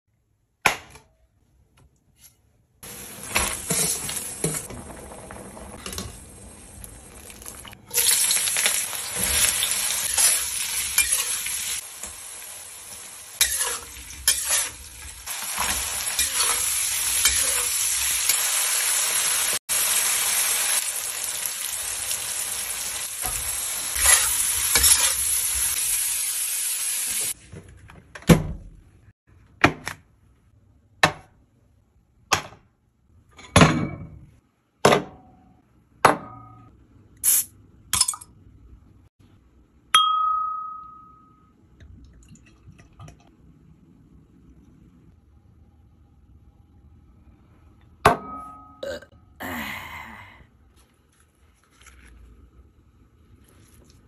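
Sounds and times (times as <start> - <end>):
meat sizzling in a wok: 6.4 - 27.4
spatula scraping a pan: 13.4 - 14.8, 23.9 - 25.2.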